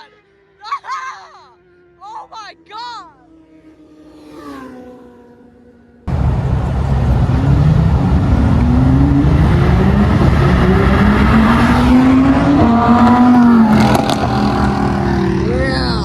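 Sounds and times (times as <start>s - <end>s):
car engine accelerating hard: 6.0s - 16.0s.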